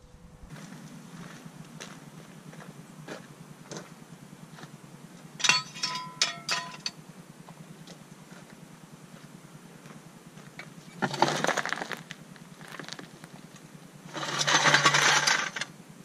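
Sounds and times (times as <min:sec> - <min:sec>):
footsteps on gravel: 0:00.5 - 0:03.9, 0:09.2 - 0:13.2
metal jack stand clanking: 0:05.4 - 0:06.9, 0:14.1 - 0:15.7.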